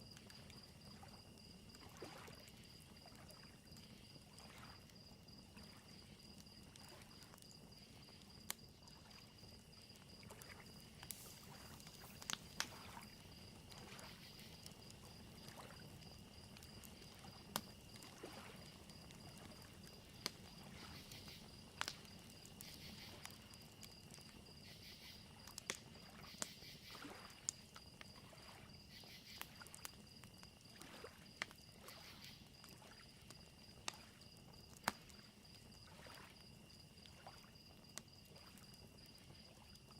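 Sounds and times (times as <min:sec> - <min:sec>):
crickets chirping: 0:00.0 - 0:39.9
fire crackling with sharp pops: 0:00.0 - 0:39.9
lake waves lapping on shore: 0:01.8 - 0:02.4, 0:10.2 - 0:14.6, 0:18.0 - 0:18.7, 0:35.9 - 0:36.3.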